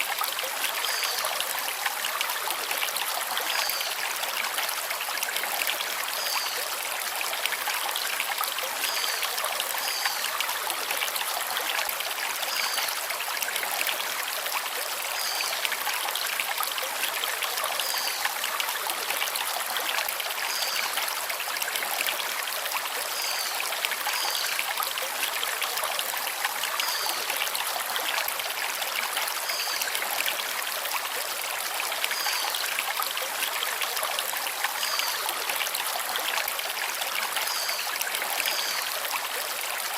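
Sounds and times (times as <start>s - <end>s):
stream rushing over stones: 0.0s - 39.9s.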